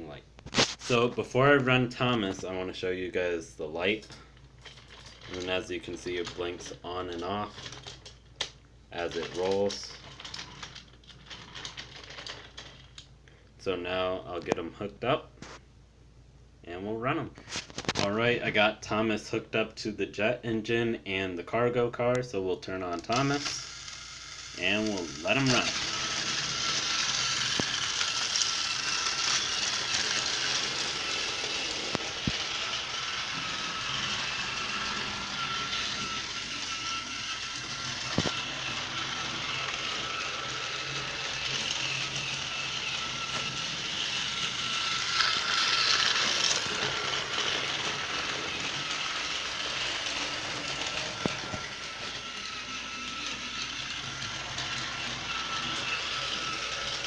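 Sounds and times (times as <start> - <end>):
toy train motor whirring: 4.0 - 13.1, 22.7 - 57.0
toy wheels rattling: 4.2 - 13.1, 23.0 - 57.0.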